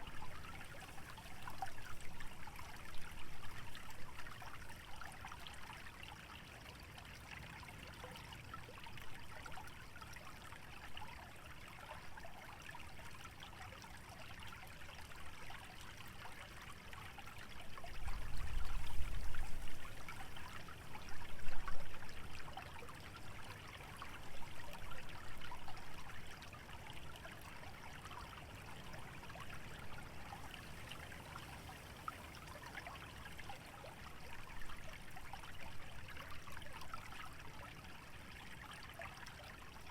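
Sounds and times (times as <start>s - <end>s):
stream trickling: 0.0s - 39.9s.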